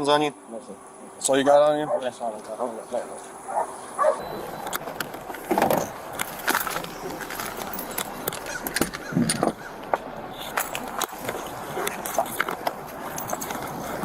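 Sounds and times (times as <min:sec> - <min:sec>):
muffled voices: 0:00.0 - 0:14.0
handling noise rustling and clicks: 0:04.2 - 0:14.0.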